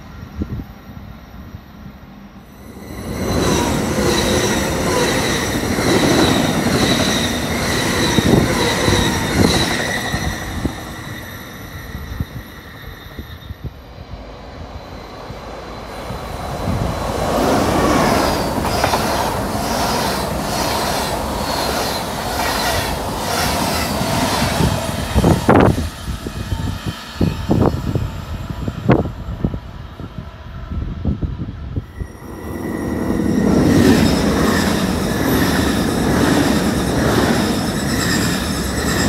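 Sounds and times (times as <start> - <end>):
train rumble: 0.0 - 39.0
wheels clacking and squeaking: 2.8 - 13.7, 17.2 - 24.3, 32.0 - 39.0
wheels clattering over rail joints: 17.4 - 22.7.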